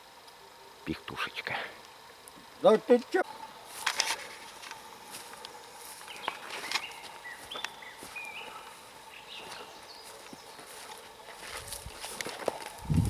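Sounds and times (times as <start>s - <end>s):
small bird chirping: 6.1s - 10.7s.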